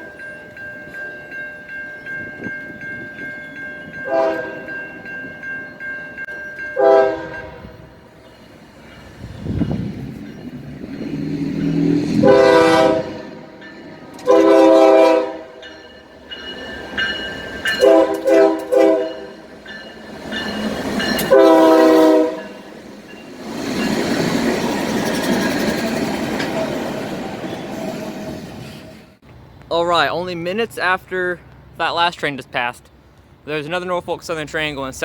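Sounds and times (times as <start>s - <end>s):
locomotive air horn blasts: 4.1s - 4.7s, 6.8s - 8.0s, 12.2s - 13.5s, 14.2s - 15.6s, 17.8s - 19.4s, 21.2s - 22.6s
train rushing past: 6.2s - 31.0s.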